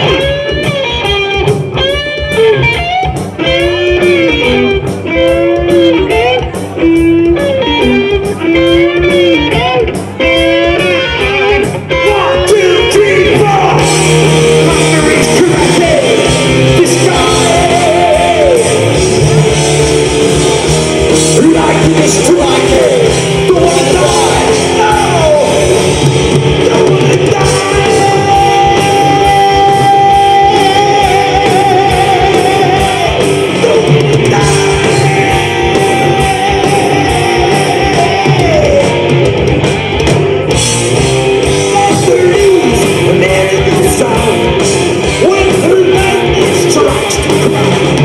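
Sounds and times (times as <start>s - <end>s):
bass: 0.0s - 48.0s
drums: 0.0s - 48.0s
electric guitars: 0.0s - 48.0s
person singing: 11.9s - 19.3s, 21.4s - 25.8s, 26.6s - 39.2s, 41.6s - 47.8s.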